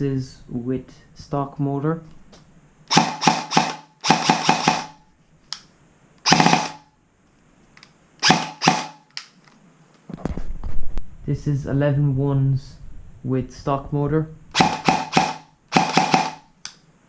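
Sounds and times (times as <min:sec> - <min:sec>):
airsoft gun firing: 0:02.9 - 0:05.0, 0:06.2 - 0:06.8, 0:08.2 - 0:09.0, 0:14.6 - 0:16.5.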